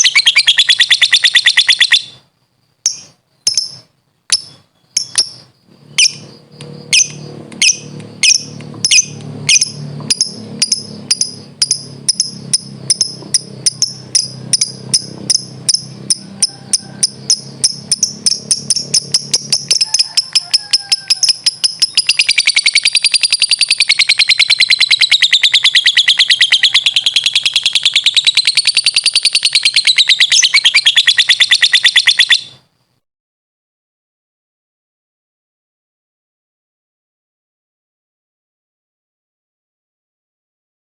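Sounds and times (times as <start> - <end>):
lovebird chattering song: 0.0 - 2.2, 2.8 - 32.6.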